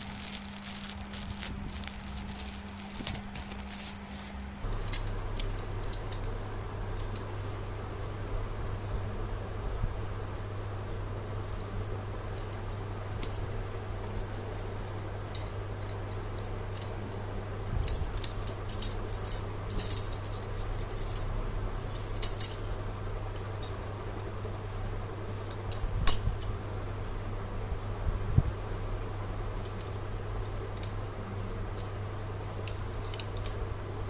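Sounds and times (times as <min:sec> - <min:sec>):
packaging crinkling and clicking: 0:00.0 - 0:04.5
steady low hum: 0:00.0 - 0:34.0.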